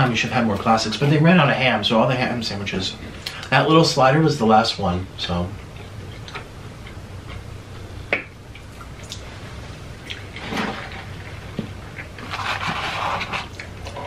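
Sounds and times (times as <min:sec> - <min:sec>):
rustling or slurping: 0:08.8 - 0:14.0.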